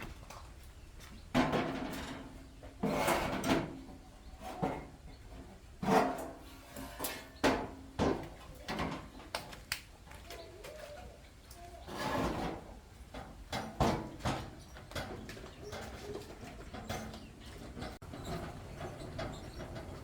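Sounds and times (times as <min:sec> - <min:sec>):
scraping clatter: 0:11.8 - 0:20.0.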